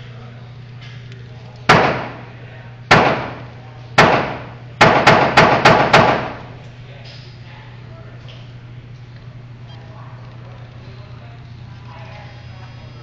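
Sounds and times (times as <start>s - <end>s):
rifle shots with echo: 1.7s - 2.3s, 2.9s - 6.5s.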